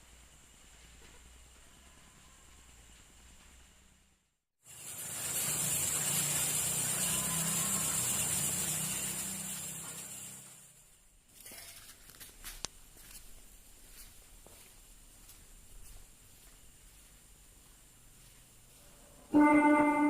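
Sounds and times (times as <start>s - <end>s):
loud steady hiss: 0.0s - 11.3s.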